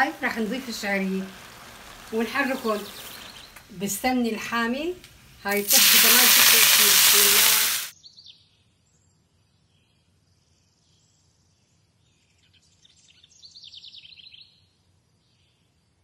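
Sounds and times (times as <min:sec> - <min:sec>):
faint birds chirping: 0:00.0 - 0:04.4.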